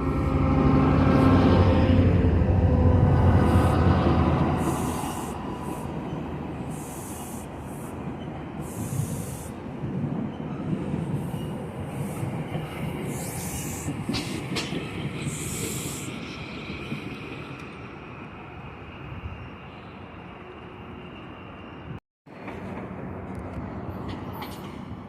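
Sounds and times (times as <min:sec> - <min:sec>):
train rumbling on rails: 0:00.0 - 0:25.0
wheel hisses: 0:04.5 - 0:08.0.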